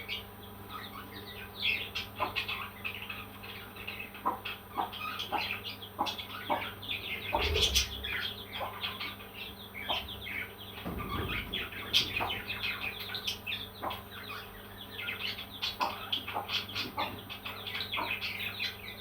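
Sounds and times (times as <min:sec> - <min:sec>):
parrots chirping and chattering: 0:00.0 - 0:19.0
low bump: 0:10.0 - 0:13.3.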